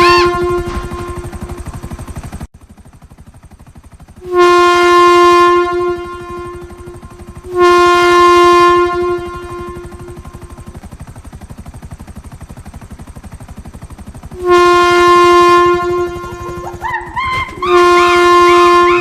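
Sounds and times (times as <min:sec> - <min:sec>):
train horn blasts: 0:00.0 - 0:01.7, 0:04.2 - 0:10.7, 0:14.4 - 0:16.8, 0:17.5 - 0:19.0
rhythmic rumble of moving train: 0:00.0 - 0:19.0.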